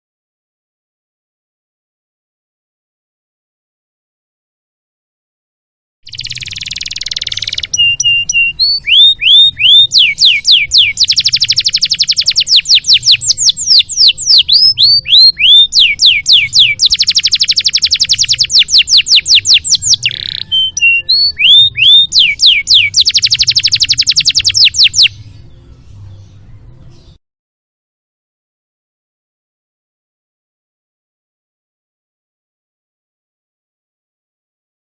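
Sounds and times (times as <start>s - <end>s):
canary singing: 6.1s - 27.2s.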